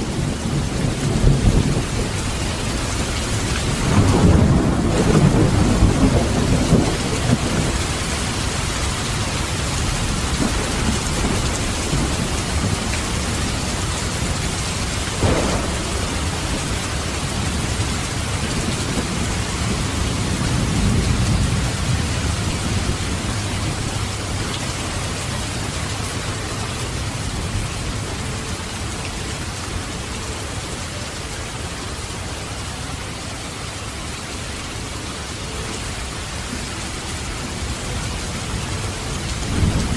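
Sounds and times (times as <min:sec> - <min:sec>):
thunder rumbling: 0:00.0 - 0:30.0, 0:36.4 - 0:39.9
heavy rain: 0:00.0 - 0:39.9
sharp thunder crack: 0:03.8 - 0:07.8, 0:15.2 - 0:19.5.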